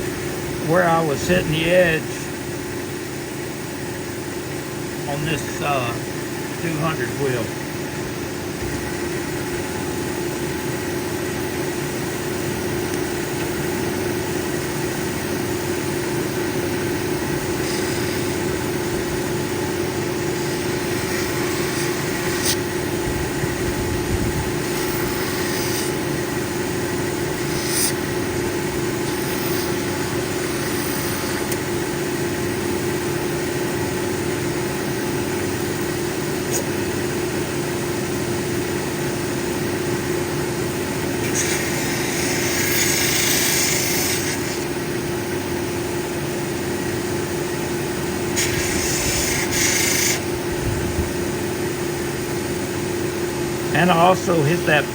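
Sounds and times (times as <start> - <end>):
machine motor humming: 0.0 - 45.9
stone scratching on grinding wheel: 17.4 - 18.6, 20.3 - 22.7, 24.6 - 26.1, 27.3 - 28.1, 28.9 - 31.6, 41.2 - 44.7, 48.4 - 50.3.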